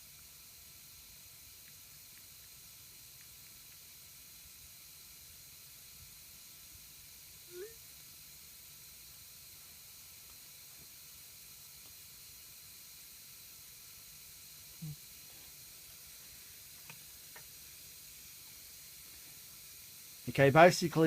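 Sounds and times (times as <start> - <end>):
small ticks: 0.0 - 6.8, 7.4 - 8.2, 10.1 - 12.7, 14.6 - 20.2
faint low hum: 0.0 - 21.0.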